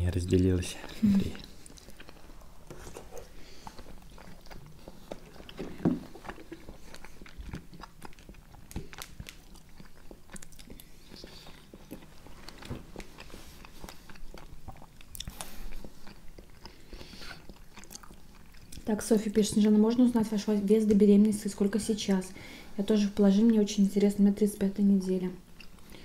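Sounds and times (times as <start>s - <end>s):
people chewing: 0.3s - 21.0s, 25.5s - 26.0s.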